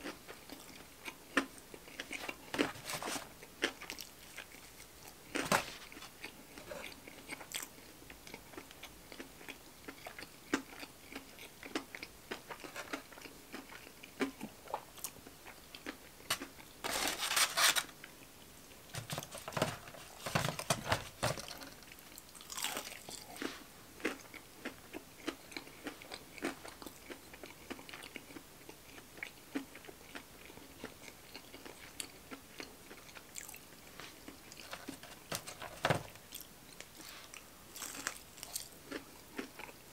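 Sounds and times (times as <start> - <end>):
chewing and crunching: 0.0 - 18.2, 18.9 - 39.9
rustling: 2.0 - 3.3, 16.3 - 18.0.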